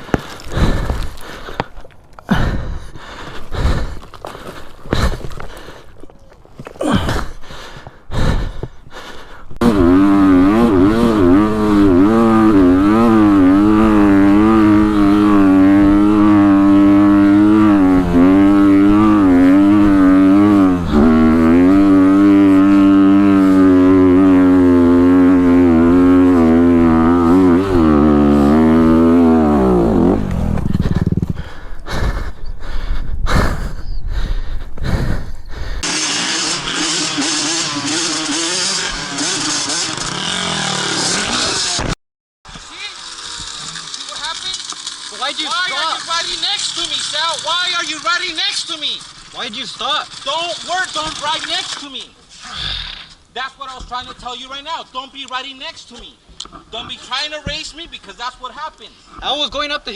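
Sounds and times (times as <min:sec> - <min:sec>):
bursts of rough noise: 0:09.6 - 0:31.6, 0:35.8 - 0:48.0
dirt bike engine revving: 0:09.6 - 0:32.1, 0:35.8 - 0:51.9.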